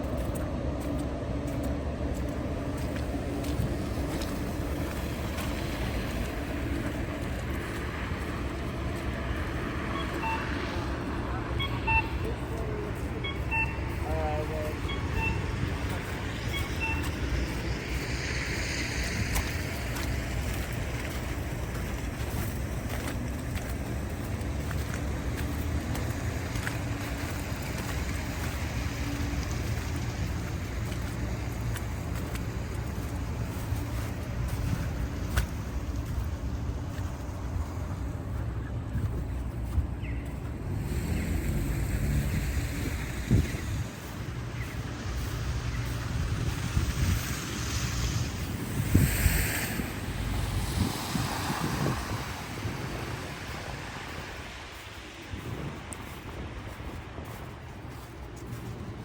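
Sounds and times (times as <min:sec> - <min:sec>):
city street rumble: 0:00.0 - 0:59.0.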